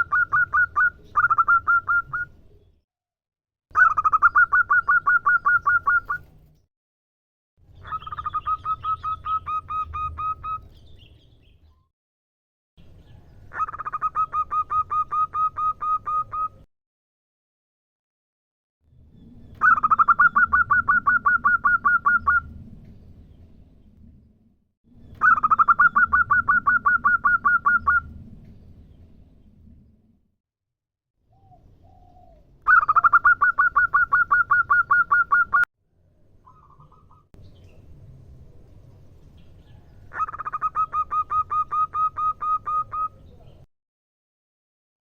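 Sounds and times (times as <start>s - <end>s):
dove calling rapid short notes: 0.0s - 2.4s, 3.8s - 6.4s, 13.5s - 16.7s, 19.6s - 22.5s, 25.2s - 28.2s, 31.3s - 35.6s, 40.1s - 43.3s.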